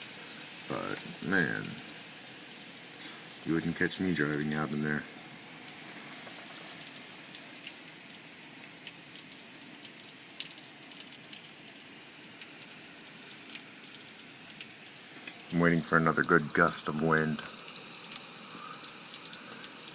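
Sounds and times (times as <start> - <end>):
heavy rain pouring: 0.0 - 19.9.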